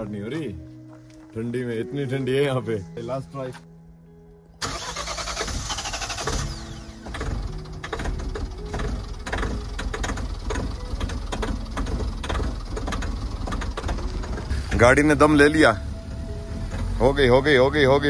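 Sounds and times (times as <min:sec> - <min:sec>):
starter motor cranking: 0:04.6 - 0:14.8
diesel engine clattering: 0:04.6 - 0:18.0.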